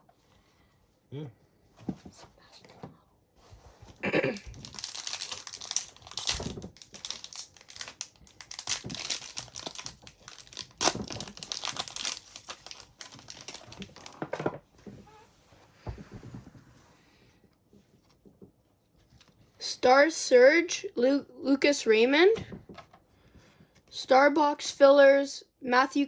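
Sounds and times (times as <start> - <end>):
plastic wrapper crinkling: 4.3 - 14.4.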